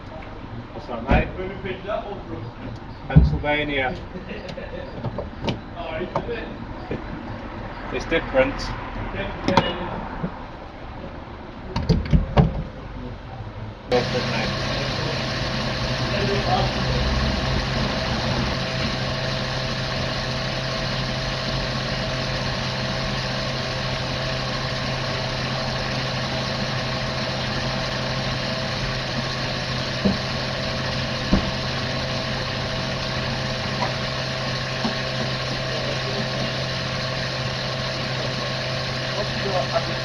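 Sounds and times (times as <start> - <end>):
car engine idling: 13.8 - 40.0.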